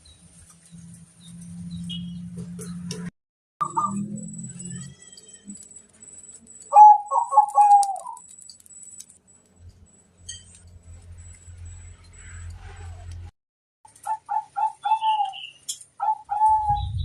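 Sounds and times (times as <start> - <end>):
dove cooing: 6.7 - 8.2, 14.0 - 17.0.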